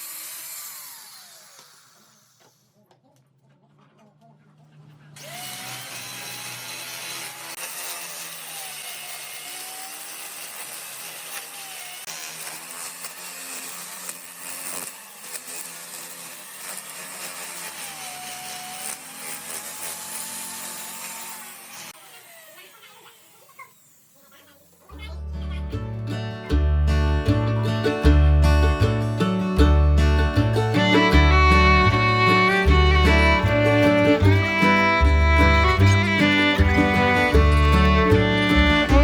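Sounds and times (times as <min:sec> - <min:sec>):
power tool cutting wood: 0:00.0 - 0:02.7, 0:05.2 - 0:24.9, 0:30.6 - 0:39.0
gritty hiss: 0:30.8 - 0:39.0.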